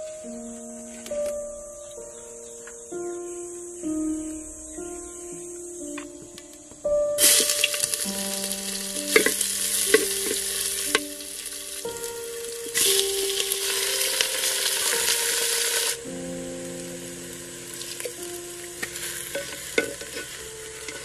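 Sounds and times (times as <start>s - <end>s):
food sizzling in hot oil: 7.2s - 21.0s.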